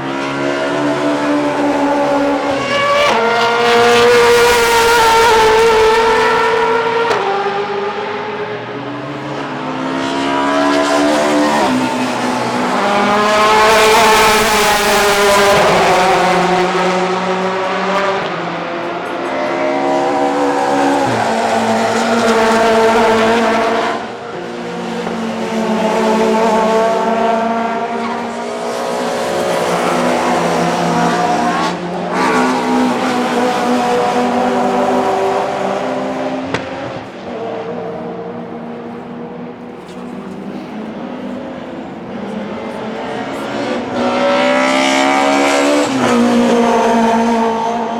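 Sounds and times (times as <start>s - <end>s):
racing cars passing: 0.0s - 47.9s.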